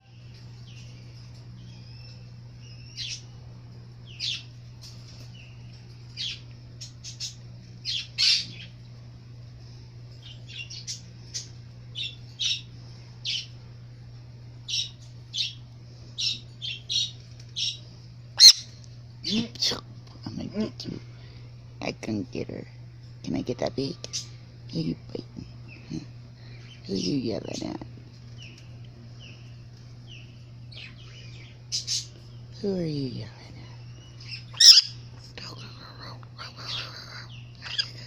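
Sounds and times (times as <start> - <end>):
bird squawking: 18.4 - 19.4, 34.2 - 35.0, 37.3 - 38.0.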